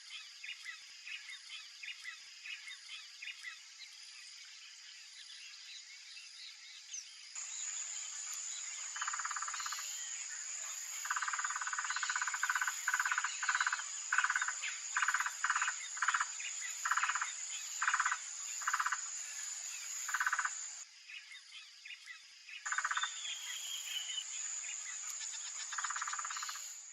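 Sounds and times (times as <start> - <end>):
high-pitched insect drone: 7.4 - 20.8, 22.7 - 26.9.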